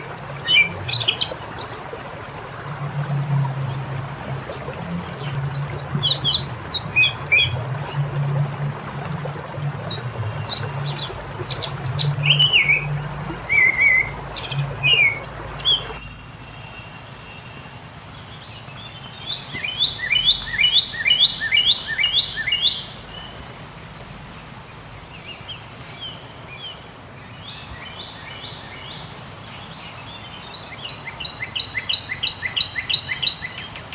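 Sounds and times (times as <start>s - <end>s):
bird singing descending notes: 0.0s - 17.5s, 19.0s - 23.2s, 30.6s - 33.8s
birds singing: 0.0s - 33.9s
low steady hum: 0.0s - 33.9s.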